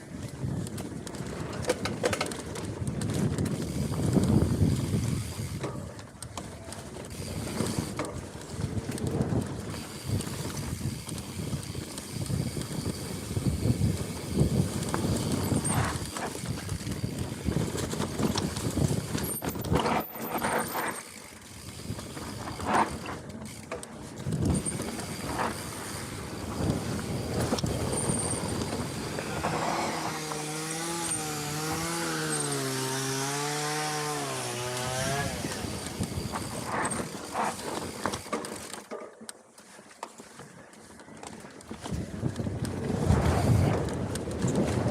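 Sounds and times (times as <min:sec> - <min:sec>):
bike knocking and rattling: 0:00.0 - 0:44.9
wind rushing over microphone: 0:02.6 - 0:05.6, 0:07.1 - 0:20.6, 0:24.1 - 0:38.2, 0:41.8 - 0:44.9.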